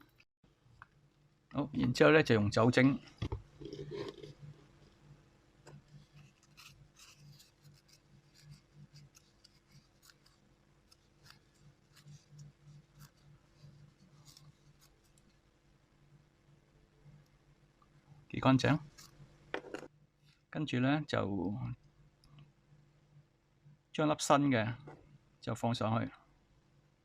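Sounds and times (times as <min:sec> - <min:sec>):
scratching and rubbing on circuit board: 0:03.6 - 0:04.7, 0:05.7 - 0:15.5, 0:18.8 - 0:19.3.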